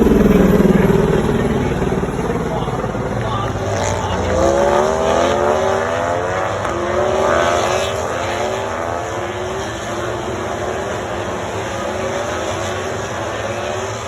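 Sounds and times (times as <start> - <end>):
racing motorcycle engines at high revs: 0.0 - 14.0.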